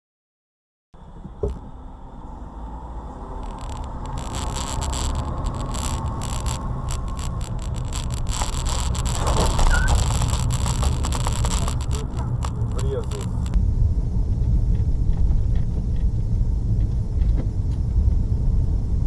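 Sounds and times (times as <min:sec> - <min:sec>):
vehicle rumbling on board: 0:01.0 - 0:19.0
crackling: 0:03.3 - 0:13.6.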